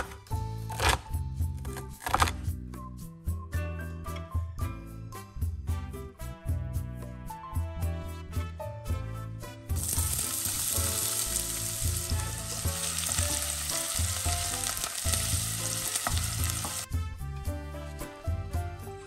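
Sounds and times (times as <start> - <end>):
background music: 0.0 - 19.0
onion sizzling in oil: 9.8 - 16.9.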